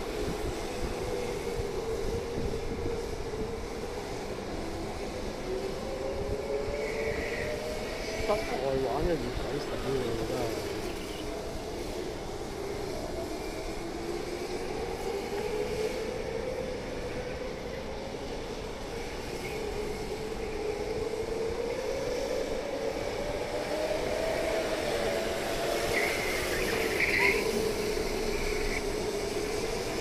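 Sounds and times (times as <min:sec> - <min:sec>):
street noise: 0:00.0 - 0:30.0
vehicle humming: 0:21.9 - 0:30.0.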